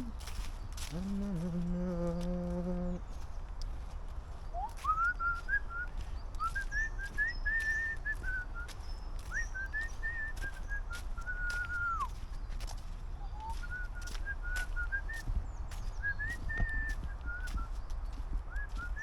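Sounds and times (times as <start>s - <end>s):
person humming: 0.0s - 3.1s
person whistling a tune: 4.6s - 12.2s, 13.3s - 15.3s, 16.0s - 17.7s, 18.5s - 19.0s.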